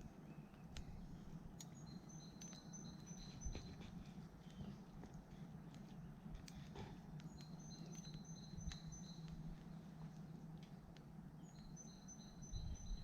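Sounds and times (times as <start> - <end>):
small bird calling: 0.0 - 9.8
light clicks and crackles: 0.0 - 13.0
low steady hum: 0.0 - 13.0.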